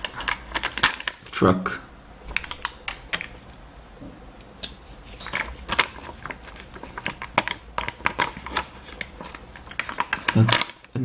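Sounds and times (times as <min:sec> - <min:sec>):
foam stickers peeling and crinkling: 0:00.0 - 0:01.4, 0:05.0 - 0:11.0.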